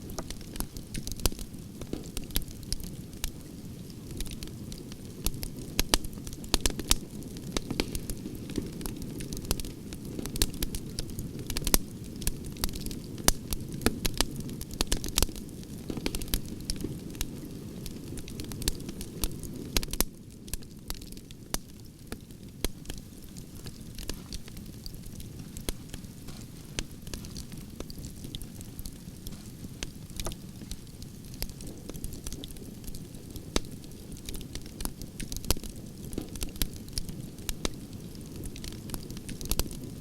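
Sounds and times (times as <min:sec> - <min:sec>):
campfire crackling and popping: 0:00.0 - 0:40.0
low rush of flame: 0:21.2 - 0:40.0.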